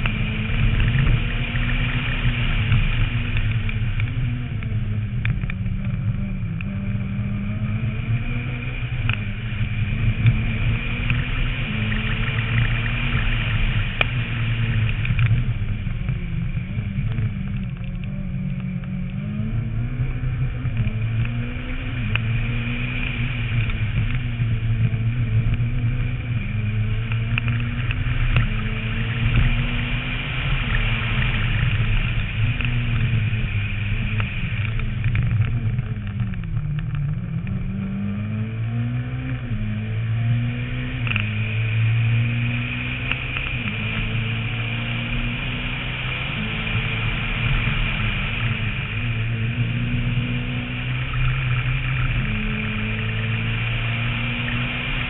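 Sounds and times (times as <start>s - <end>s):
rally car engine revving: 0.0s - 55.0s
road noise: 0.0s - 55.0s.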